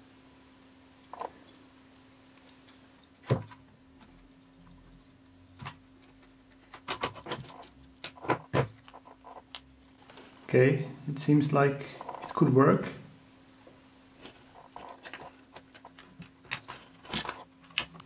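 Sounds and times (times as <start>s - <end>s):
small hard parts clicking: 5.6s - 9.7s.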